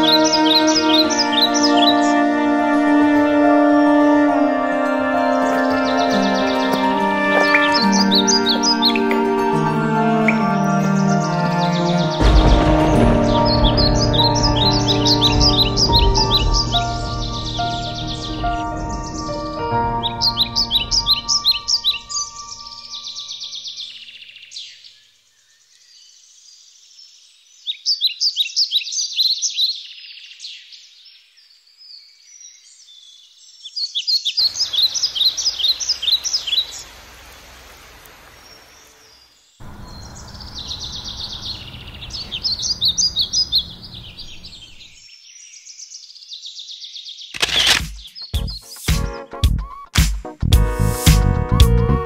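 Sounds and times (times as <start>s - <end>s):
songbird chirping: 0.0s - 49.9s
loud music: 11.7s - 21.7s, 48.4s - 52.0s.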